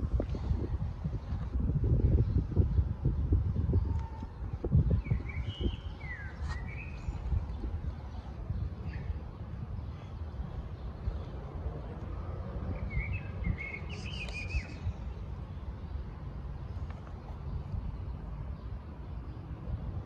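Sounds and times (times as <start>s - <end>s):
steady low rumble: 0.0s - 13.6s
small bird chirping: 12.8s - 15.0s.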